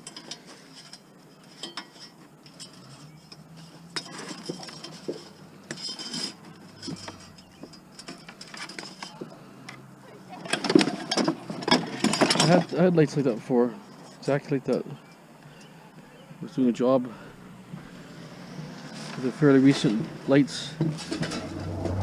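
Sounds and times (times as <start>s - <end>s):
metal and glass junk clinking: 0.0s - 9.3s, 10.4s - 12.8s.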